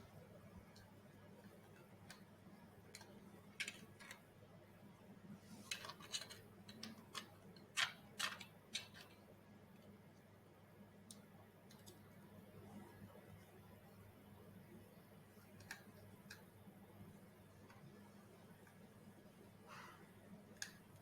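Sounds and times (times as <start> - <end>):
faint steady hum: 0.0 - 21.0
small clicks and taps of parts: 1.5 - 4.3, 5.7 - 10.3, 11.0 - 12.2, 15.4 - 16.5, 20.5 - 21.0.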